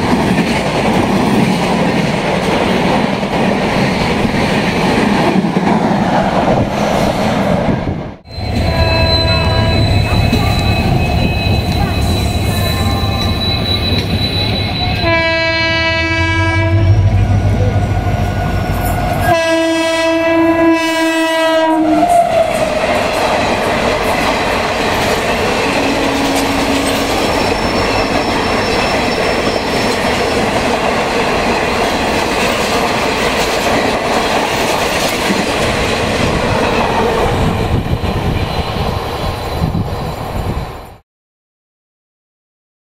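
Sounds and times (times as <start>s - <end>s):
train wheels clattering on track: 0.0s - 7.1s, 9.7s - 15.3s, 22.5s - 40.0s
train horn blasts: 8.4s - 13.5s, 14.7s - 17.7s, 19.2s - 22.5s, 25.7s - 27.4s.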